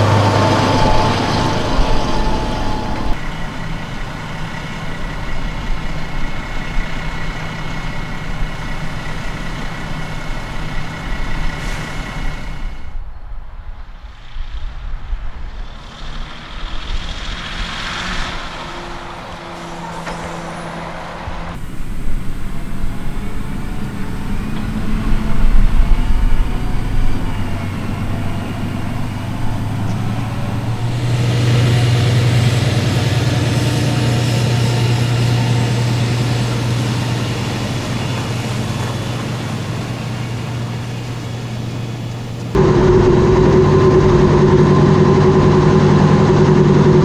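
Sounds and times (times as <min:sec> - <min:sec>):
tractor diesel engine under load: 0:00.0 - 0:13.0, 0:15.8 - 0:47.0.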